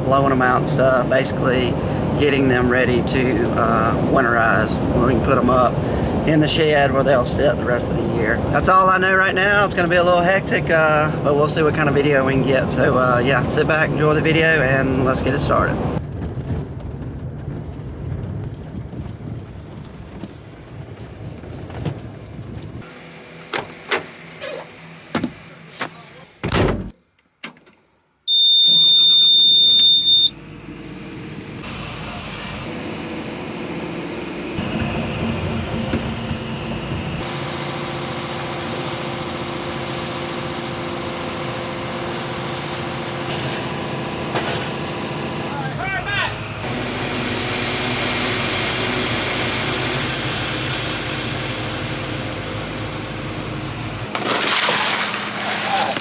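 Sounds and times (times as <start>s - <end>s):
engine running with low hum: 0.0s - 26.9s, 30.3s - 56.0s
vehicle door shutting: 23.5s - 27.8s
high electronic beep: 28.3s - 30.4s
vehicle engine running: 30.4s - 54.3s.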